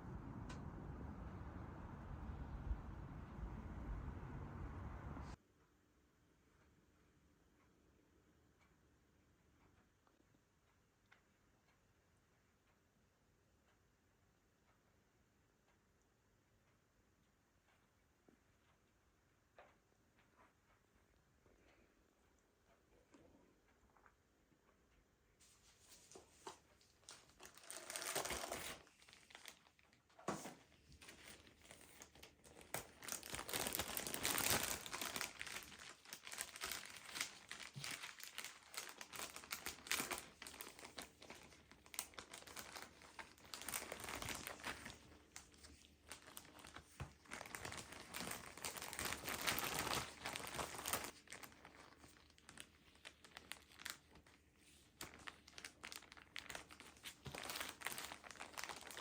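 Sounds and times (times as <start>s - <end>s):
packaging crinkling: 27.0s - 30.0s, 31.0s - 59.0s.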